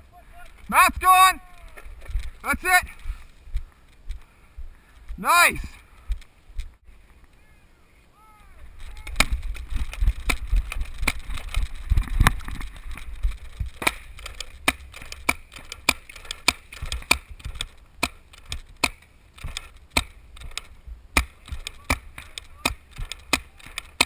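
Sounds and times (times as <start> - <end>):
low rumbling wind: 0.0 - 23.9
paintball markers firing: 8.8 - 24.0.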